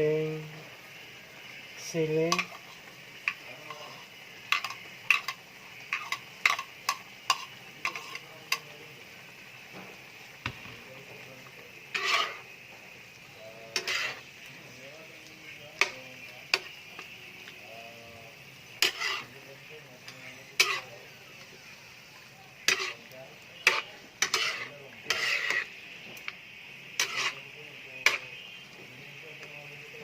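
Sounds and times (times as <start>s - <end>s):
frying sizzle: 0.0s - 30.0s
utensil scraping pan: 2.3s - 8.6s, 11.9s - 12.6s, 13.6s - 14.4s, 18.7s - 21.4s, 22.6s - 25.8s, 26.9s - 28.4s.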